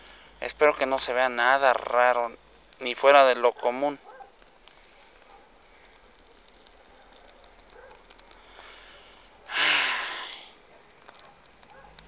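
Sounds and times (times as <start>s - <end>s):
campfire crackling: 0.0s - 12.0s
breathy hissing rush: 8.3s - 10.6s.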